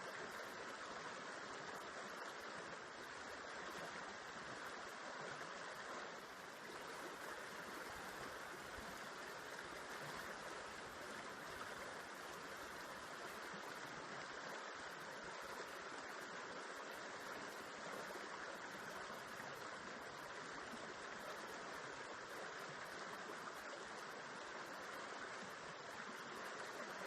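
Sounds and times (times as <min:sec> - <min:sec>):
river water flowing: 0:00.0 - 0:27.0.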